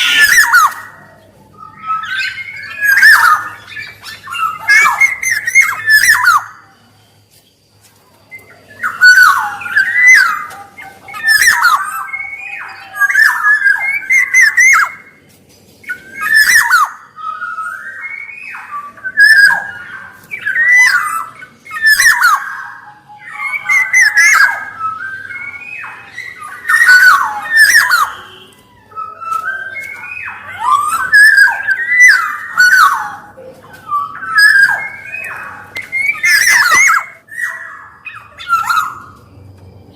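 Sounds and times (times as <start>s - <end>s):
bird singing fluty phrases: 0.0s - 39.9s.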